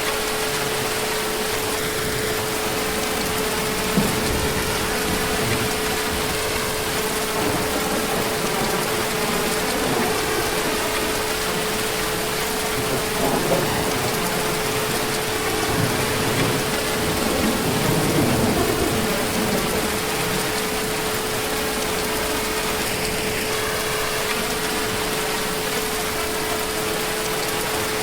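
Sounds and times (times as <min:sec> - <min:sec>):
heavy rain falling: 0:00.0 - 0:28.0
distant thunder rumbles: 0:01.7 - 0:23.4.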